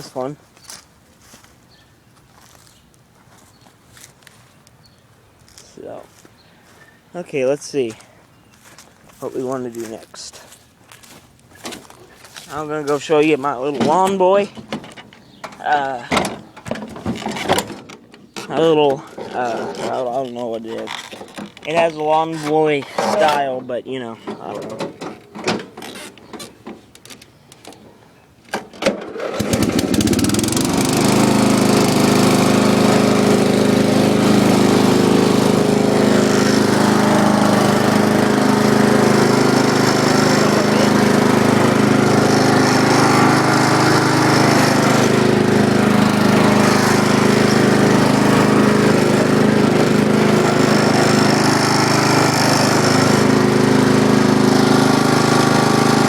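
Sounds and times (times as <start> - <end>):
lawn mower engine running: 28.6 - 56.0.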